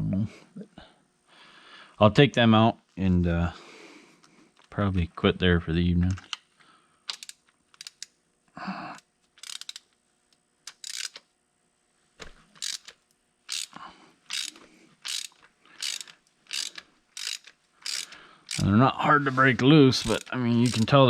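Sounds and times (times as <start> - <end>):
ratchet wrench clicking: 7.1 - 8.2, 9.4 - 10.0, 10.7 - 11.3, 12.6 - 18.7, 20.0 - 21.0.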